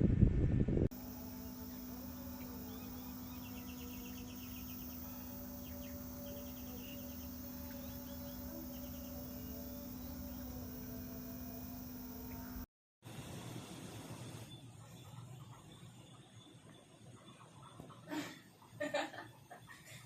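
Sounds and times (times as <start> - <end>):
insects chirping in trills: 0.9 - 12.7
quiet steady hum: 0.9 - 12.7.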